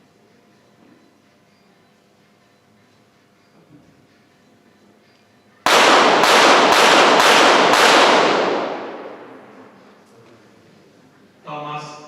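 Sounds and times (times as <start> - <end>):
pistol shots: 5.7 - 10.0
range ringing after shots: 5.7 - 10.0.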